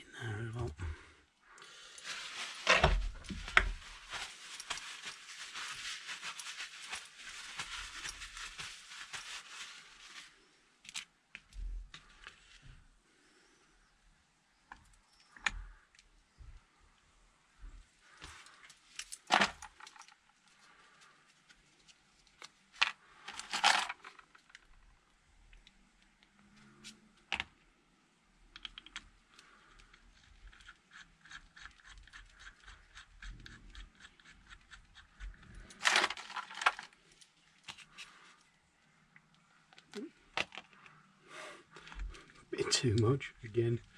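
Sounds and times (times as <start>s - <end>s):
metal parts clattering: 23.3s - 24.2s, 35.7s - 36.9s.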